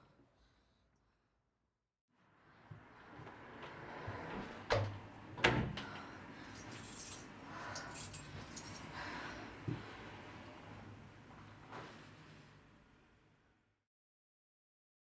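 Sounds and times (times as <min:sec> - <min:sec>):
light metallic jingling: 0:06.5 - 0:09.0.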